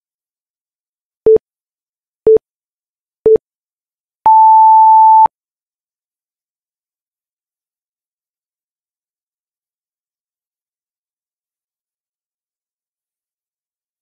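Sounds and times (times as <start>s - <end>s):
long higher timer beep: 4.3s - 5.3s
short low timer beeps: 4.3s - 5.3s.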